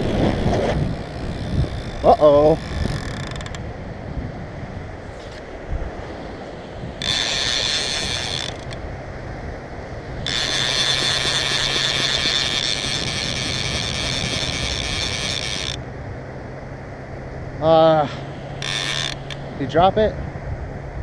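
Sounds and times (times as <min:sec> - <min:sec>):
fishing reel drag buzzing: 0:00.0 - 0:03.6, 0:06.9 - 0:08.8, 0:10.2 - 0:15.8, 0:18.5 - 0:19.8.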